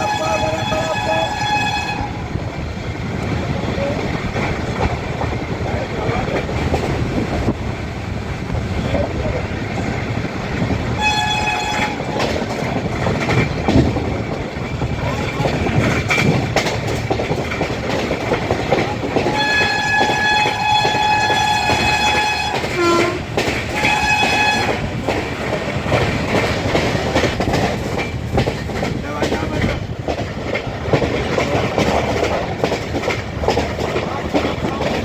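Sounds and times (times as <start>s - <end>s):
train horn blasts: 0.0s - 2.4s, 10.8s - 12.1s, 19.2s - 25.0s
train rumble and clickety-clack: 0.0s - 35.0s.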